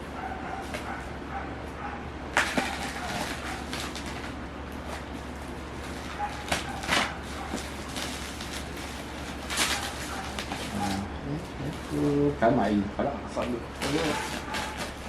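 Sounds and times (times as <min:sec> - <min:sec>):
cardboard box scraping and rustling: 0:13.8 - 0:15.0.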